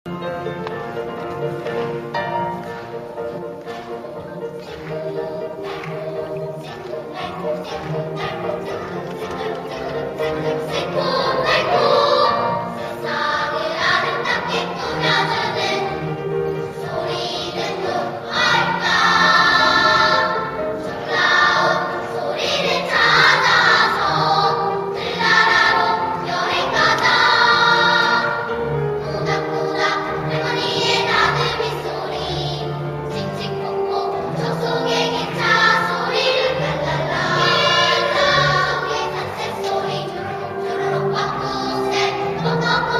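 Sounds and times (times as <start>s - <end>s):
children's choir singing: 0.1s - 42.9s.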